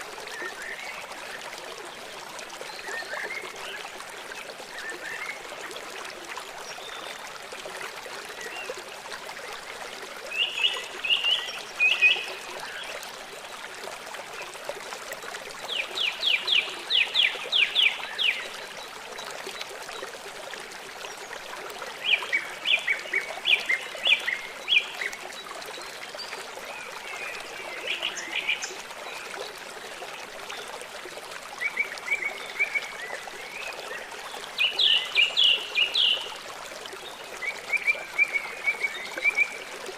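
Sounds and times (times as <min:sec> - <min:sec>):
small songbirds singing: 0:31.7 - 0:36.4.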